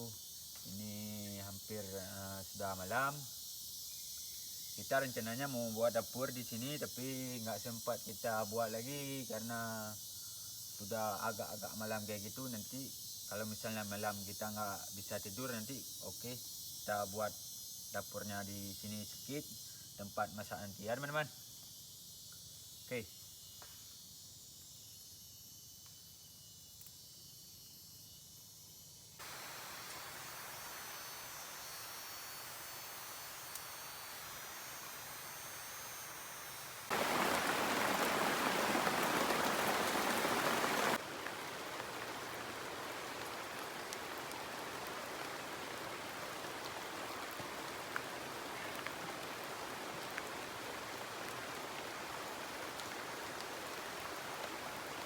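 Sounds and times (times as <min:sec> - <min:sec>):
crickets chirping: 0:00.0 - 0:55.0
rain falling: 0:29.2 - 0:55.0.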